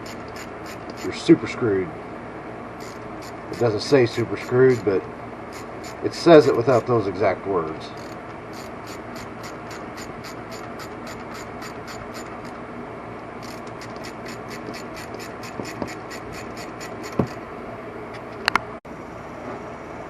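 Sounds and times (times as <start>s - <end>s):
hand ratchet clicking: 0.0s - 1.1s, 2.8s - 3.7s, 5.5s - 6.0s, 8.0s - 12.6s, 13.4s - 17.4s.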